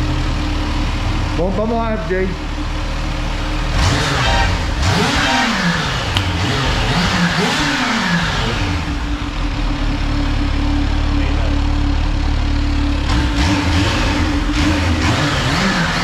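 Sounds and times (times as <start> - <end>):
motorcycle engine idling: 0.0 - 16.0
motorcycle engine revving: 2.4 - 16.0.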